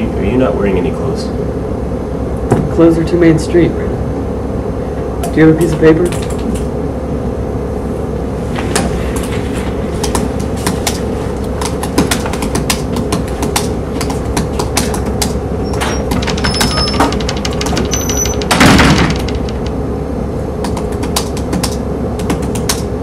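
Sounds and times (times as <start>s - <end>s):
steady low hum: 0.0s - 23.0s
irregular sharp clicks: 6.1s - 6.7s, 20.6s - 22.9s.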